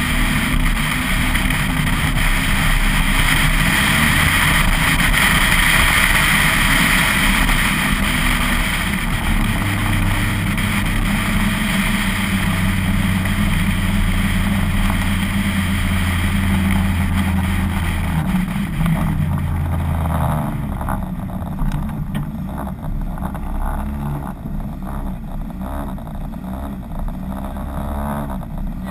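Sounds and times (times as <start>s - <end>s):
rally car engine: 0.0s - 28.9s.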